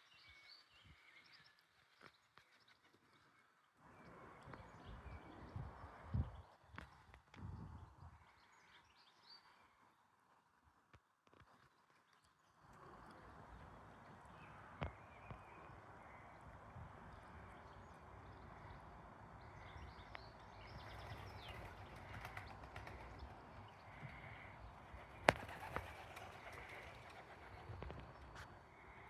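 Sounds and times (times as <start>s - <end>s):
small birds chirping: 17.2s - 29.0s
pigeons tapping and scuffling: 20.8s - 23.4s, 25.0s - 28.4s.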